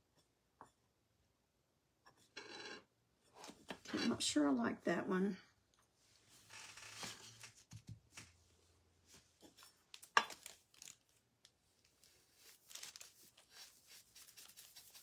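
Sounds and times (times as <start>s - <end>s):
small clicks and rustles: 9.1s - 15.0s.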